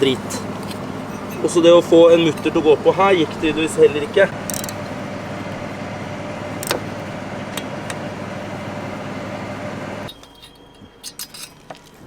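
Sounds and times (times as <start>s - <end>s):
hand tools clinking on metal: 0.0s - 5.0s, 10.1s - 12.0s
machine hum: 0.0s - 11.2s.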